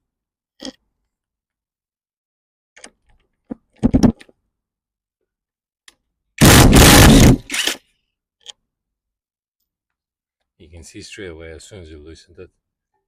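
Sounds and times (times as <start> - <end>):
loud noisy burst: 6.4 - 7.6.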